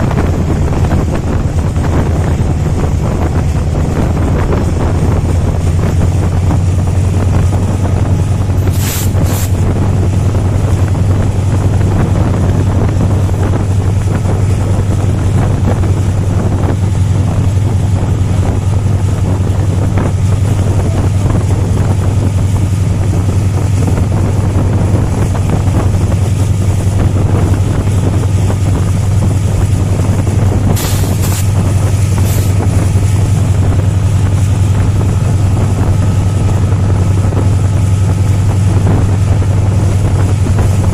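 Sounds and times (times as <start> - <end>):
diesel locomotive engine hum: 0.0 - 40.9
train rolling noise: 0.0 - 40.9
wind: 0.0 - 40.9.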